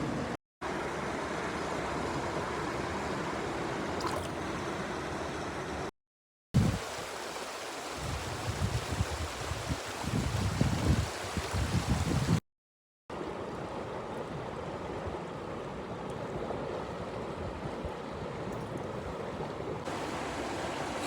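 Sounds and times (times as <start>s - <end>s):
river water rushing: 6.8s - 10.4s, 13.2s - 21.0s.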